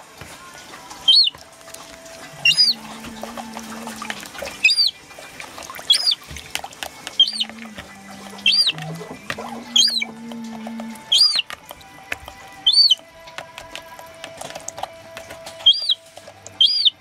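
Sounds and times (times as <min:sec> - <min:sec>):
gull chick peeping: 0:01.0 - 0:01.4, 0:02.2 - 0:05.0, 0:05.8 - 0:11.7, 0:12.5 - 0:14.4, 0:15.0 - 0:17.0.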